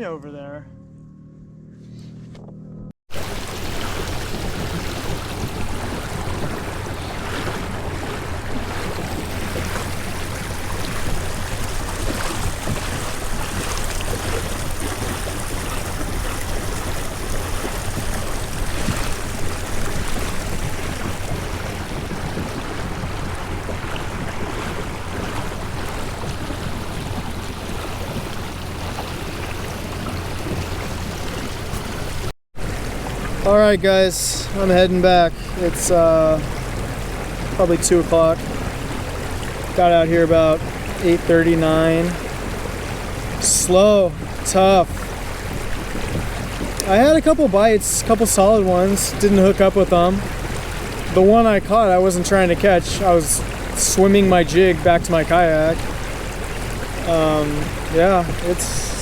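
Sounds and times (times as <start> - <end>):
wind on microphone: 3.1 - 33.5, 34.4 - 47.4
water rushing along kayak hull: 3.1 - 59.0.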